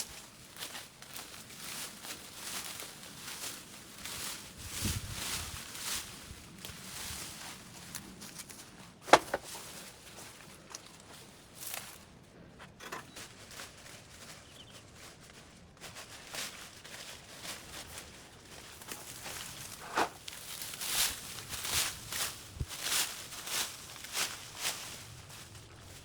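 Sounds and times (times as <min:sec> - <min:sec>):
footsteps in brush: 0:00.0 - 0:26.0
rustling in brush: 0:00.0 - 0:26.0.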